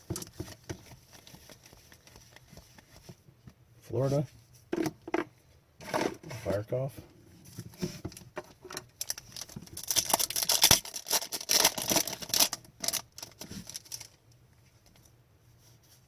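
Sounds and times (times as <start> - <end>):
trading cards rustling and clicking: 0.1 - 3.2.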